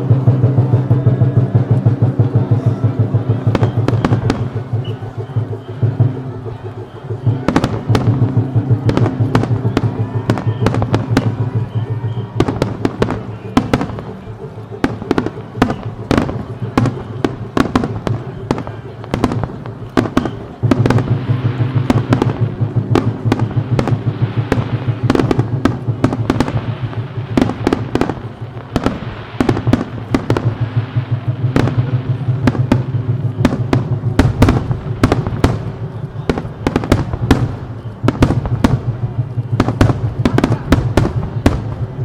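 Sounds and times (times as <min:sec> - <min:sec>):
fireworks bangs and crackling: 0:00.0 - 0:42.0.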